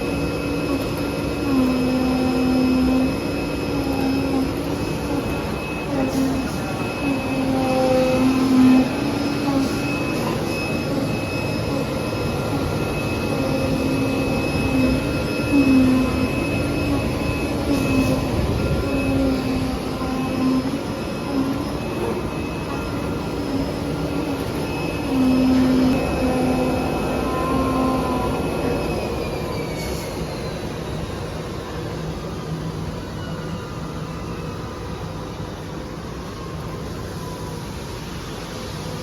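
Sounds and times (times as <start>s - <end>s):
cutting machine running: 0.0s - 29.6s.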